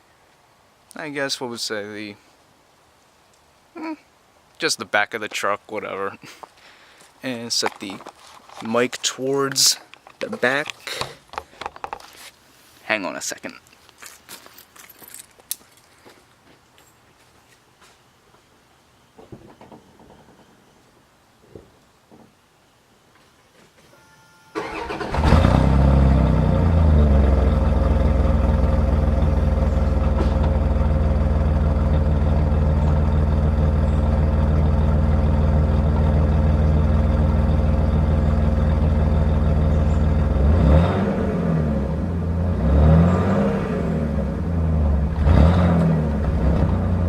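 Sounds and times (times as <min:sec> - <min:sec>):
engine starting: 0:24.6 - 0:25.9
engine revving: 0:24.6 - 0:33.5, 0:38.7 - 0:47.0
engine idling through exhaust: 0:25.2 - 0:40.7.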